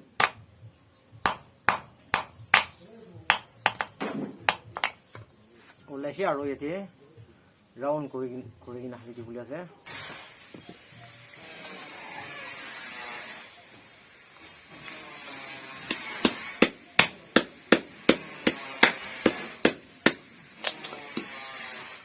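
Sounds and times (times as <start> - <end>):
sharp metallic knocks of wire cable: 0.0 - 0.4, 1.3 - 5.2, 15.9 - 21.4.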